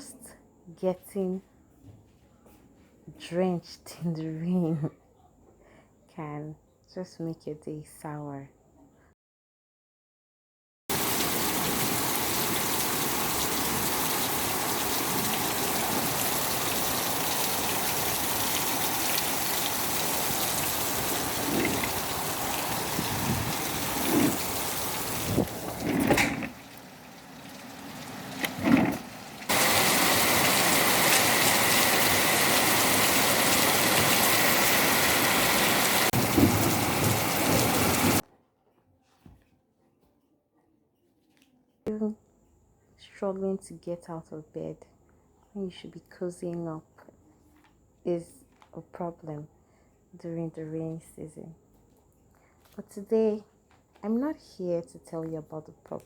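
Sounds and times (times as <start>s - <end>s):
heavy rain: 10.9s - 38.2s.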